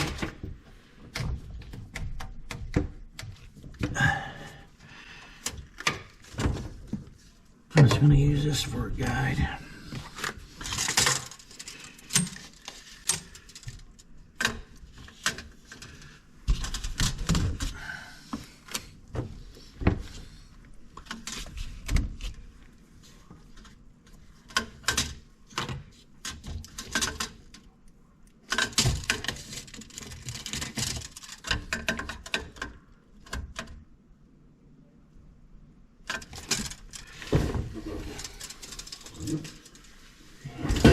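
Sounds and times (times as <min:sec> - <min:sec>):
tools and pipe fittings rattling: 0:10.6 - 0:17.5.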